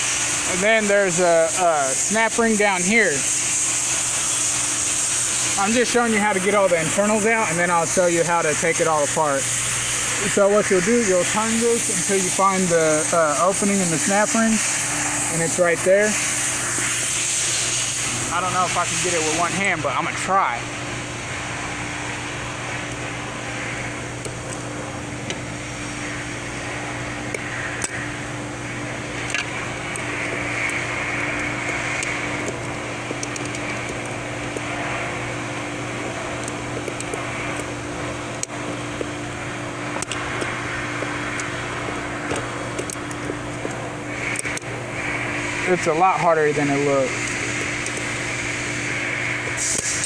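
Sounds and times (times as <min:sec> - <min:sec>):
fan humming: 0:00.0 - 0:50.0
tools clicking and tapping: 0:31.7 - 0:34.7, 0:36.4 - 0:37.7, 0:42.3 - 0:43.8.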